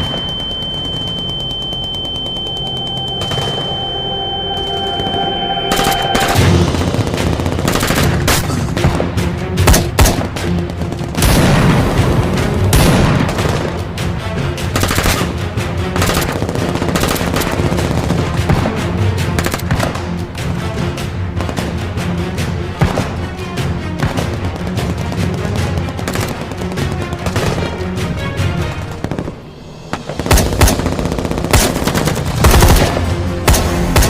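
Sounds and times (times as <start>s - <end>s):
rapid automatic gunfire: 0.0s - 2.7s, 16.0s - 18.4s, 30.2s - 34.0s
high steady ringing tone: 0.0s - 6.8s
dramatic music: 0.0s - 34.0s.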